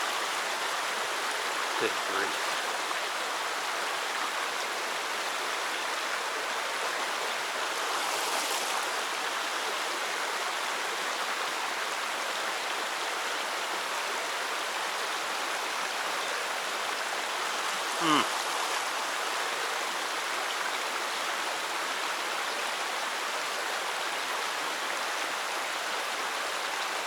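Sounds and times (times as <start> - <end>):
water rushing over rocks: 0.0 - 20.8.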